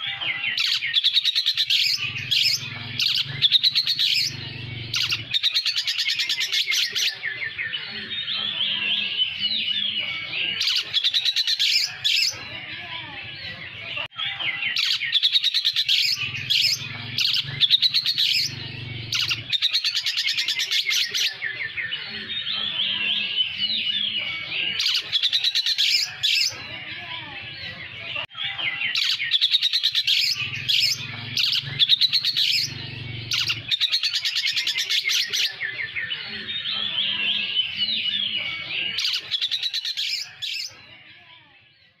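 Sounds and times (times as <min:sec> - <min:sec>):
bird singing chattering trills: 0:00.0 - 0:12.6, 0:14.3 - 0:26.6, 0:28.4 - 0:40.8
imitated lovebird calls: 0:00.1 - 0:07.2, 0:14.7 - 0:21.4, 0:28.4 - 0:35.6.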